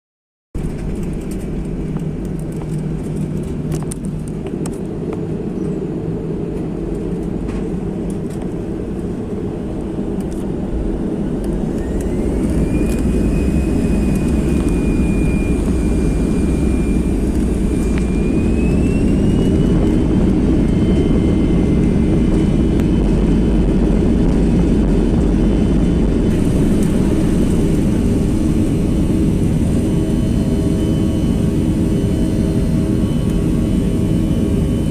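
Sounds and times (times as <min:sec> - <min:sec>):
jet engines spooling up: 0:00.6 - 0:34.9.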